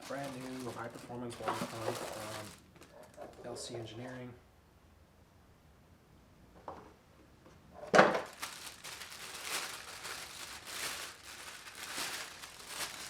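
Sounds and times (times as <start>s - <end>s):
packaging crinkling and rustling: 0.0s - 3.6s, 8.0s - 13.0s.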